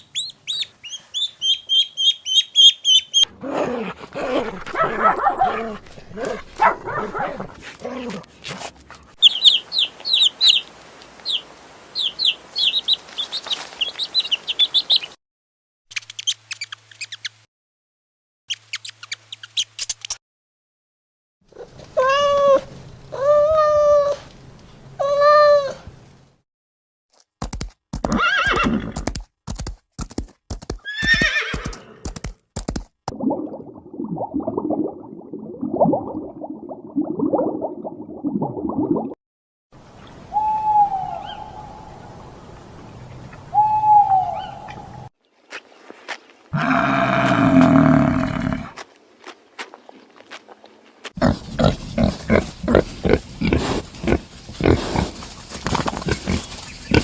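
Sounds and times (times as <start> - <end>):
falling animal call: 46.6 - 48.7
low rough grunting: 46.6 - 48.8.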